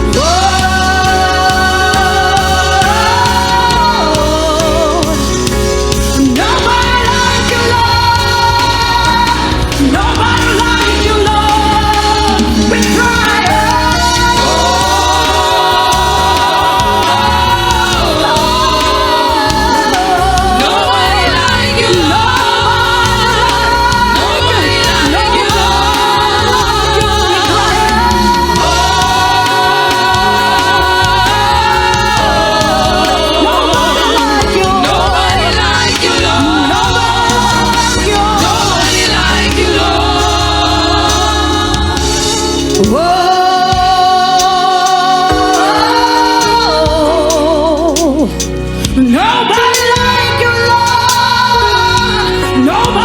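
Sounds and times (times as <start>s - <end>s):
band accompaniment with bass: 0.0s - 53.0s
gospel choir singing: 0.0s - 53.0s.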